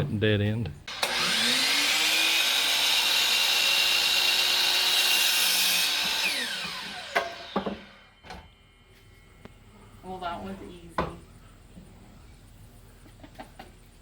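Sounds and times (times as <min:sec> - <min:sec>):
electric power saw cutting: 0:00.9 - 0:08.5.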